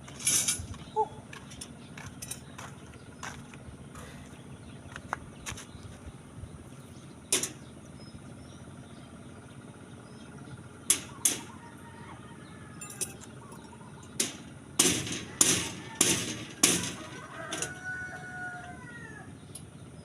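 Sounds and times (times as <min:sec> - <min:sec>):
steel bar knocks and clinks: 0:12.8 - 0:13.3, 0:14.2 - 0:17.9.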